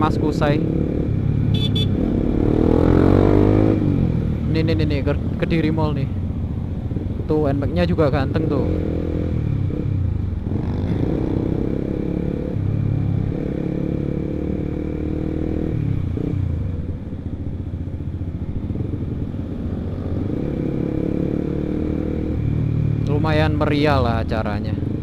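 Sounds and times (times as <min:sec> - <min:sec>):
motorcycle engine running: 0:00.0 - 0:23.2.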